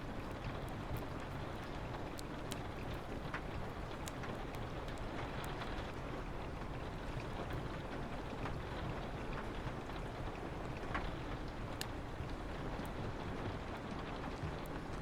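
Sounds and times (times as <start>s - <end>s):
wood fire crackling: 0.0s - 13.8s
steady rain: 0.0s - 15.0s.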